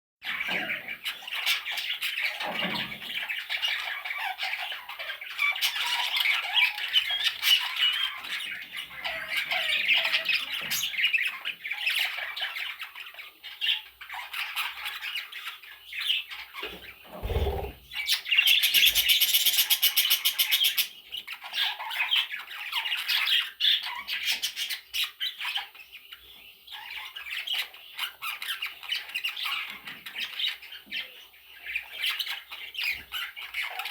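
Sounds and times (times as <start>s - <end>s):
budgerigar chicks squawking: 16.6s - 19.2s.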